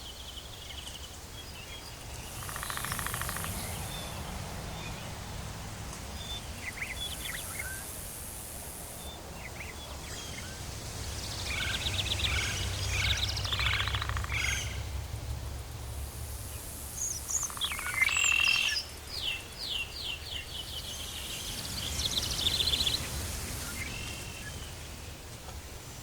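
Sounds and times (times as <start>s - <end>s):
birds chirping and trilling: 1.4s - 5.3s, 6.1s - 14.9s, 16.5s - 25.2s
low steady rumble: 9.0s - 17.7s.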